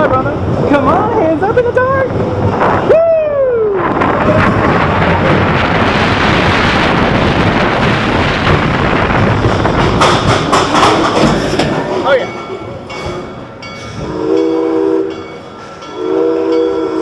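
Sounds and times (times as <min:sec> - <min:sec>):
wind buffeting microphone: 0:00.0 - 0:14.6
roller coaster cars rumbling: 0:00.0 - 0:17.0
sharp clacks: 0:09.6 - 0:13.2.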